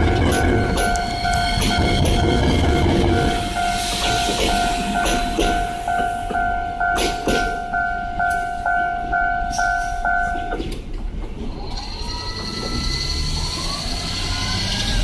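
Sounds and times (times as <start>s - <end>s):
train wheels knocking on rail joints: 0.0s - 8.4s
railway crossing bell dinging: 0.0s - 10.9s.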